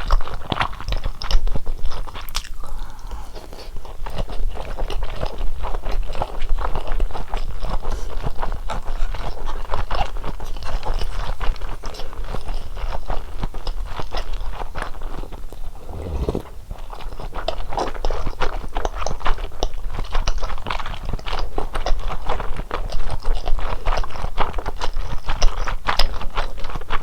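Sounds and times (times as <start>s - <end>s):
chewing and biting food: 0.0s - 16.6s, 17.8s - 27.0s.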